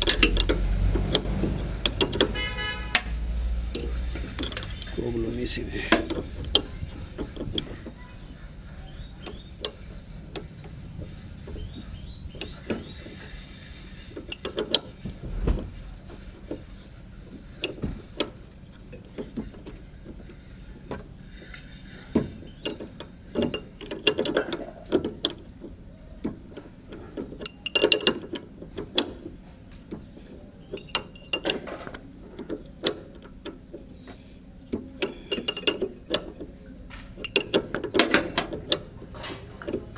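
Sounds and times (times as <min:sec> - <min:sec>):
wrench clicking on metal parts: 0:00.0 - 0:08.0, 0:22.6 - 0:25.6, 0:26.2 - 0:29.3, 0:30.7 - 0:33.6, 0:34.7 - 0:39.9.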